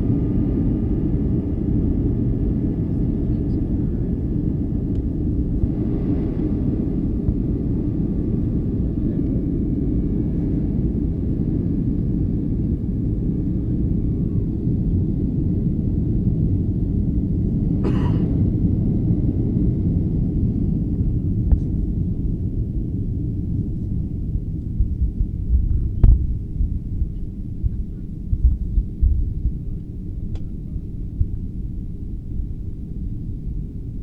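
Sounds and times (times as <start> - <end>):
airliner cabin rumble: 0.0 - 34.0
faint steady whine: 19.3 - 34.0.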